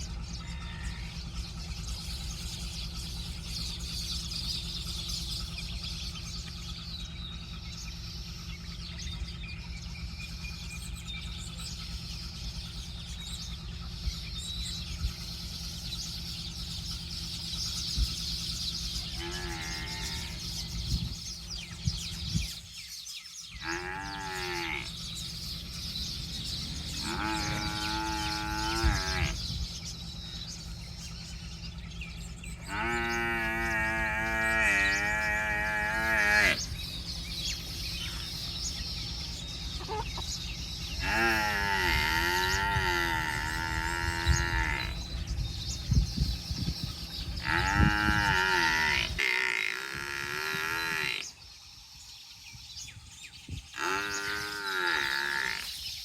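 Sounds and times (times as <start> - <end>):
farm animal calling: 0.0 - 56.0
low hum: 23.5 - 55.4
baby chicks chirping: 23.7 - 51.3.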